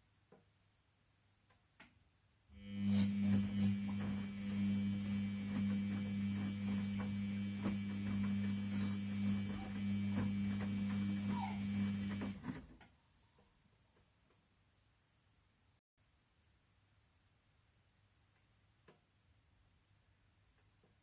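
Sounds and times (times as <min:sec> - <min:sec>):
washing machine motor hum: 0:02.6 - 0:12.7.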